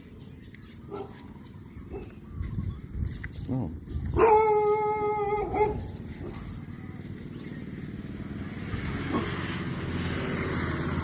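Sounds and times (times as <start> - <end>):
vehicle engine humming: 0.0 - 11.0
dog yelp: 4.1 - 6.5
dog howling: 4.2 - 5.9.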